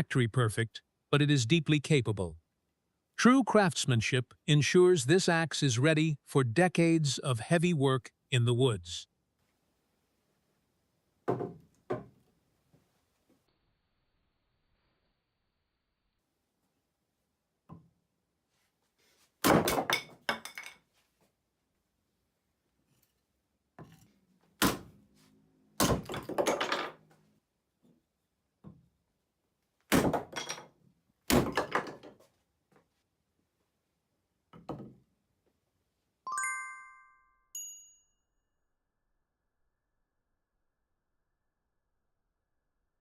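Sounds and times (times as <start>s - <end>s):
bright metallic ring: 36.4s - 38.3s.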